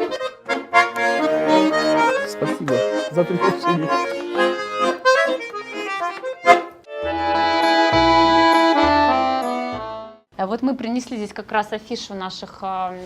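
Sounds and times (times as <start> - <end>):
accordion playing: 0.0 - 10.3.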